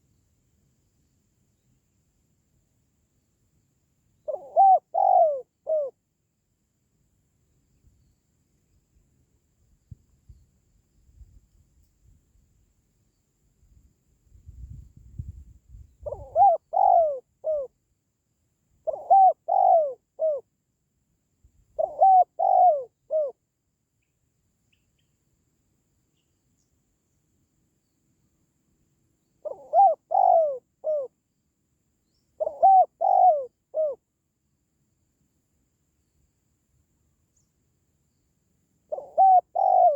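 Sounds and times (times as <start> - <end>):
dove cooing: 4.2 - 6.0, 16.0 - 17.8, 18.8 - 20.4, 21.8 - 23.4, 29.4 - 31.1, 32.4 - 34.0, 38.9 - 39.9.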